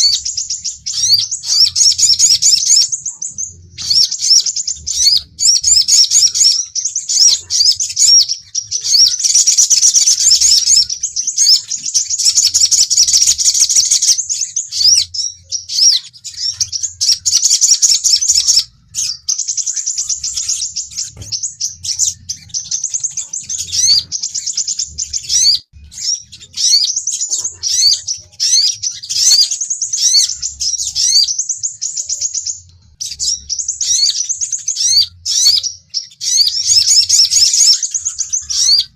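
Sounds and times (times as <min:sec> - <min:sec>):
sunbirds chirping and twittering: 0:00.0 - 0:38.9.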